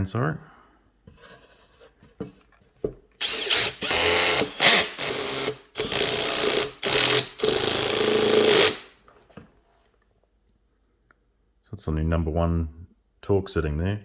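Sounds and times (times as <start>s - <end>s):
cordless drill driving screw: 3.2s - 8.9s.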